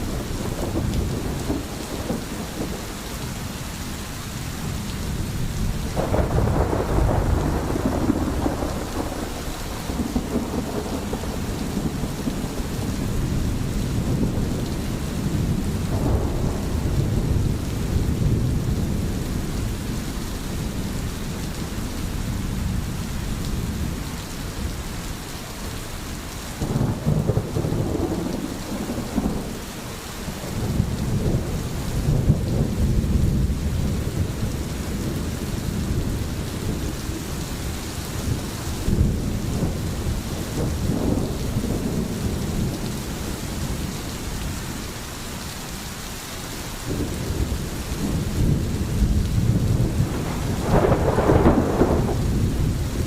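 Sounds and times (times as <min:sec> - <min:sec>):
low rolling thunder: 0:00.0 - 0:03.7, 0:04.5 - 0:24.9, 0:26.6 - 0:45.0, 0:46.8 - 0:53.0
heavy rain: 0:00.0 - 0:53.0.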